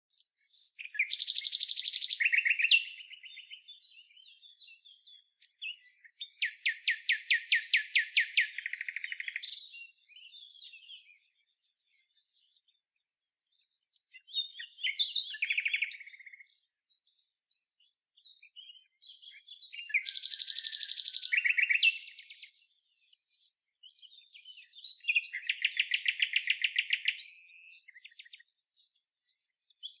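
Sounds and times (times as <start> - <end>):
songbird trilling song: 0.0 - 30.0
bird twittering: 0.5 - 5.0, 5.6 - 11.6, 14.2 - 16.5, 18.6 - 22.5, 24.0 - 30.0.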